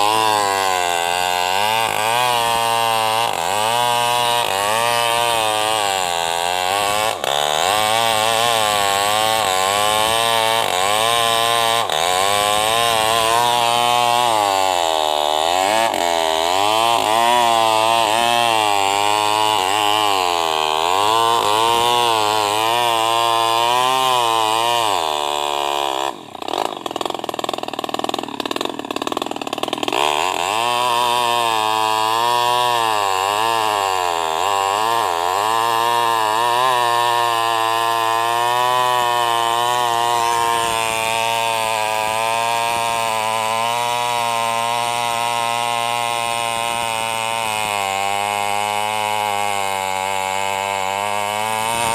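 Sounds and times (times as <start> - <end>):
chainsaw cutting log: 0.0 - 51.9.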